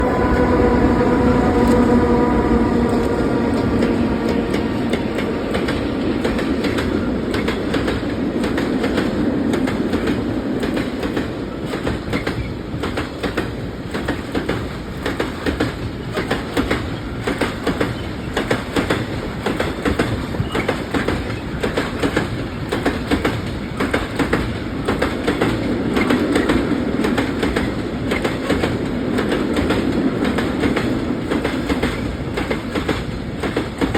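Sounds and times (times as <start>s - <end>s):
locomotive hum: 0.0s - 10.8s.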